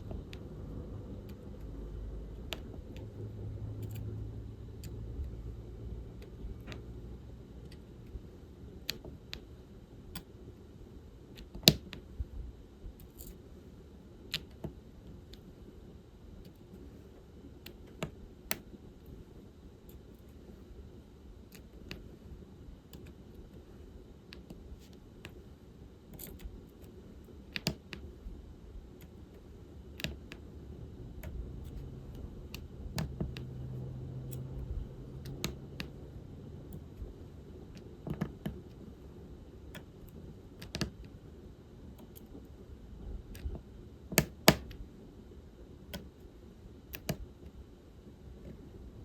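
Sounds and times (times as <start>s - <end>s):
low hum: 0.0s - 10.2s, 28.0s - 46.8s
drill pen clicks and taps: 27.5s - 28.0s, 44.2s - 44.8s, 47.0s - 47.2s.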